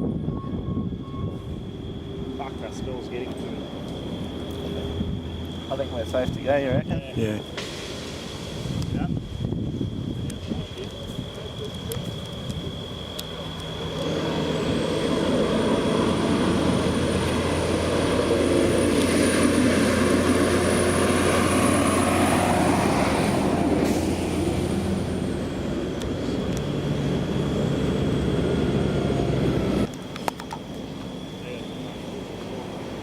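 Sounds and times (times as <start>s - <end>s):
road and tyre noise: 0.0s - 33.0s
thin high whine: 0.0s - 33.0s
vehicle engine running: 10.4s - 33.0s.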